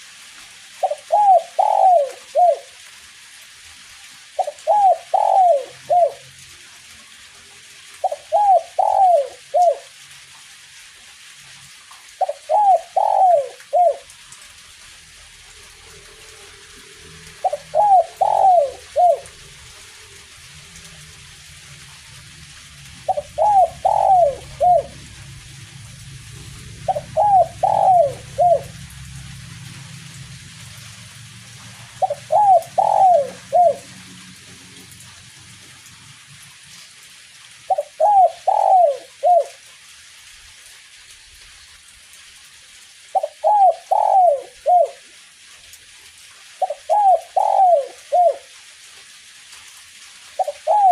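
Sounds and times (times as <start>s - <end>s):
light drizzle hiss: 0.0s - 50.9s
dove cooing: 0.8s - 2.8s, 4.4s - 6.3s, 8.0s - 9.9s, 12.2s - 14.1s, 15.9s - 20.3s, 22.9s - 29.4s, 31.9s - 34.1s, 37.7s - 39.6s, 43.1s - 45.0s, 46.6s - 48.6s, 50.4s - 50.9s.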